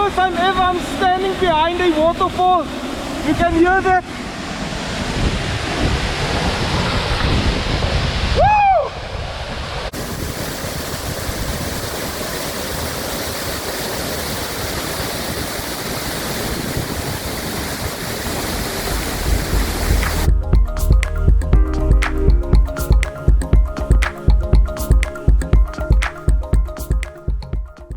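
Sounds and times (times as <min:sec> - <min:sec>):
waterfall roaring: 0:09.9 - 0:20.3.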